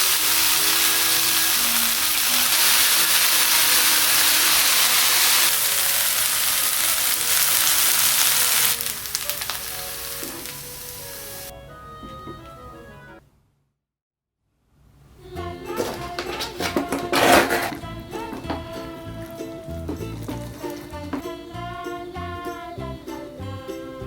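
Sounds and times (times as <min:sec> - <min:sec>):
food sizzling in a frying pan: 0:00.0 - 0:11.5, 0:20.0 - 0:21.2.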